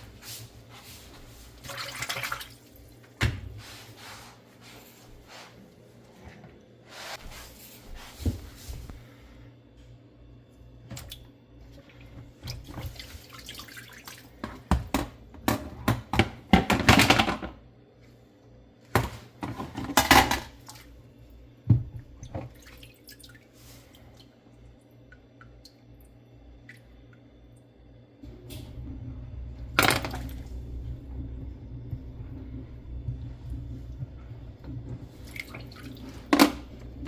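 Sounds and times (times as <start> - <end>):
water sloshing and dripping: 0.8 - 3.2, 10.8 - 15.0, 20.5 - 27.6, 28.4 - 37.0.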